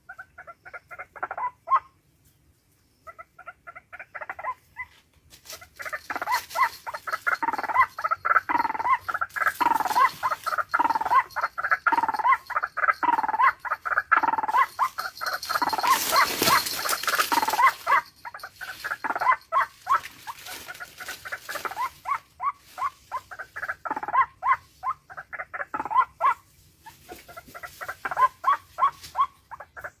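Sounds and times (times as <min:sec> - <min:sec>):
rustling noise: 0:04.8 - 0:07.4, 0:14.8 - 0:23.3
small birds chirping: 0:05.6 - 0:30.0.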